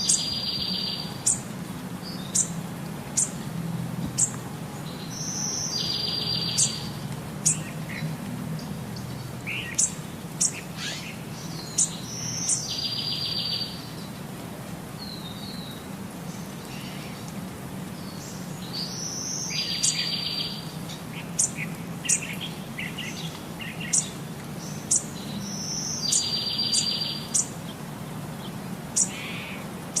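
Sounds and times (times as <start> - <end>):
bird song with buzzy trill: 0.0 - 1.4, 5.0 - 8.0, 9.0 - 13.9, 21.2 - 27.5.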